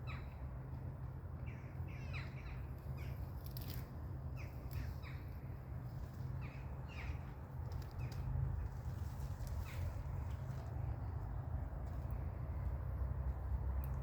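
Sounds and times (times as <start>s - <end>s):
birds with harsh calls: 0.0s - 0.4s, 1.4s - 10.9s
steady low rumble: 0.0s - 14.0s.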